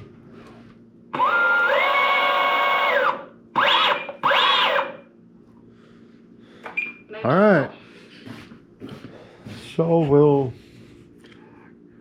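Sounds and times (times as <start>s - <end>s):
electric motor whine: 1.2s - 5.0s.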